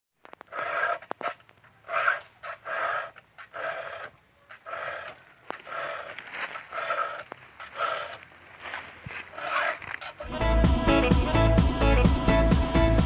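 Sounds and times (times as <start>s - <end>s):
file rasping on chain teeth: 0.5s - 8.2s, 9.3s - 9.9s.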